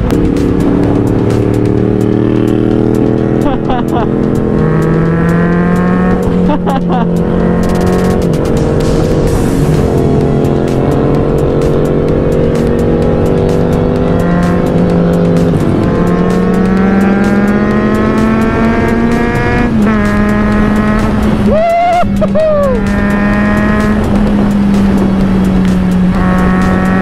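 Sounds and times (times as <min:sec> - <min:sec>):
motorcycle engine accelerating: 0:00.0 - 0:27.0
wind rush on microphone: 0:19.4 - 0:27.0.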